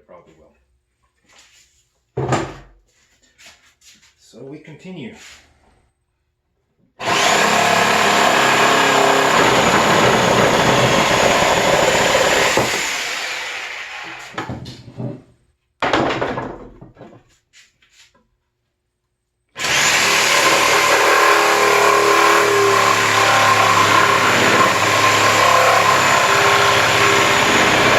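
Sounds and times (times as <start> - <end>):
reciprocating saw cutting wood: 7.0 - 14.4, 19.6 - 27.9.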